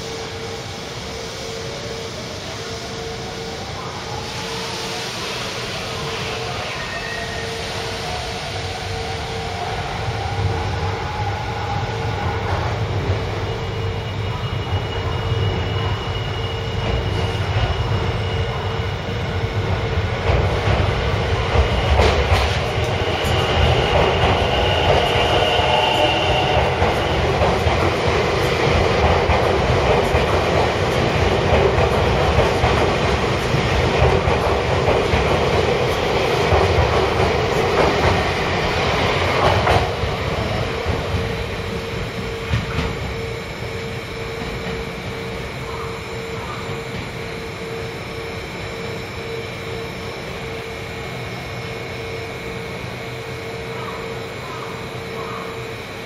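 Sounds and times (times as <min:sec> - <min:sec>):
electric train running: 0:00.0 - 0:56.0
thin high whine: 0:21.7 - 0:36.2, 0:37.1 - 0:56.0.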